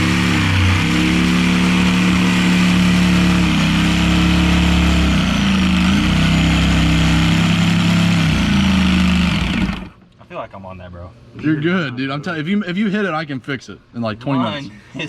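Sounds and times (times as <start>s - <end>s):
power saw cutting fiberglass: 0.0s - 10.0s.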